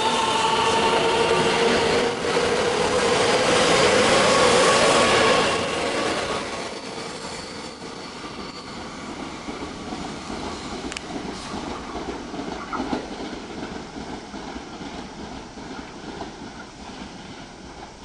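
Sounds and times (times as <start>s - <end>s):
distant rail rumble: 0.0s - 18.0s.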